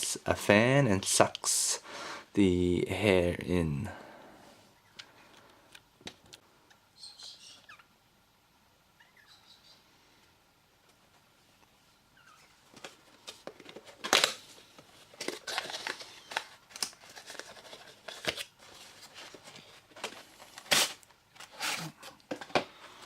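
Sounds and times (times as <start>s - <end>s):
cardboard packaging rustling and clicking: 12.7s - 23.0s
sharp packaging snaps: 14.0s - 14.4s, 20.0s - 21.5s.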